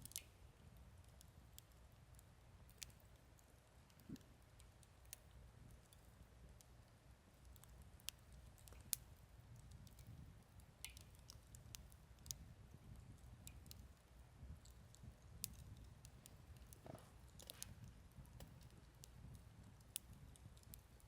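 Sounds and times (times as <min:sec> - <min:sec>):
low rumble of burning fire: 0:00.0 - 0:21.0
campfire pops and snaps: 0:01.1 - 0:03.2, 0:07.4 - 0:21.0.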